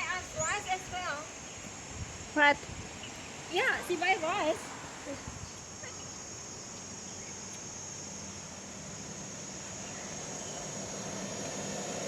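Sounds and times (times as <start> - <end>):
high-pitched insect chorus: 0.0 - 12.0
soft outdoor hiss: 0.0 - 12.0.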